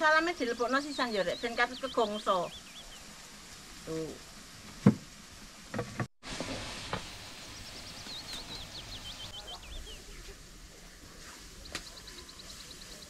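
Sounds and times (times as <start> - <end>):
bird chirping: 0.1 - 3.1, 6.9 - 13.0.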